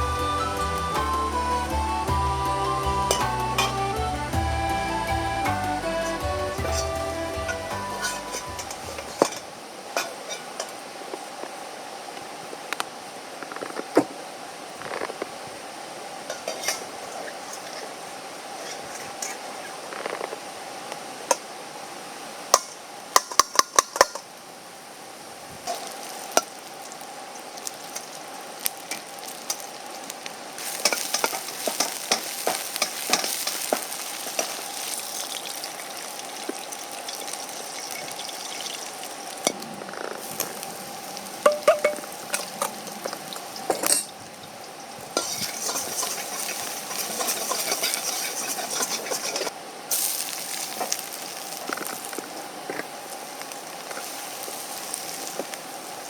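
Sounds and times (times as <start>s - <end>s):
food sizzling in a wok: 0.0s - 15.0s, 15.6s - 56.0s
utensil scraping a wok: 30.6s - 35.3s, 45.2s - 50.2s.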